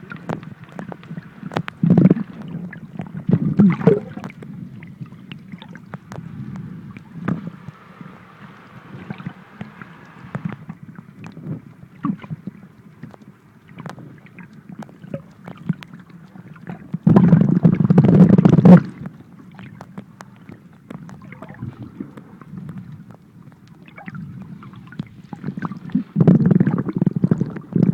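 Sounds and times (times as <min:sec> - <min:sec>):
low underwater rush: 0:00.0 - 0:27.9
rushing burst of water: 0:06.2 - 0:10.8.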